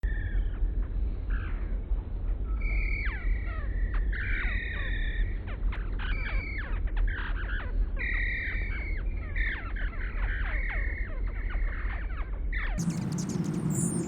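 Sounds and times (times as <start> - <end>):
slowed hummingbird chirps: 12.8 - 14.0
steady low rumble: 12.8 - 14.0.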